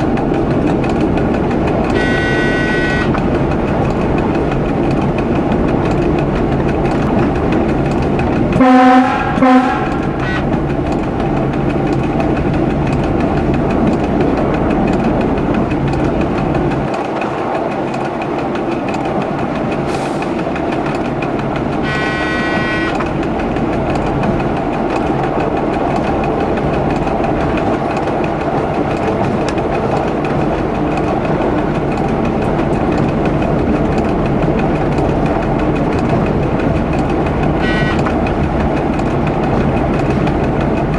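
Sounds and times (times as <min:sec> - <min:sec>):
diesel train running: 0:00.0 - 0:40.9
rail joint clicks: 0:00.0 - 0:40.9
train horn: 0:01.9 - 0:03.2, 0:08.6 - 0:10.6, 0:21.8 - 0:23.0, 0:37.6 - 0:38.1.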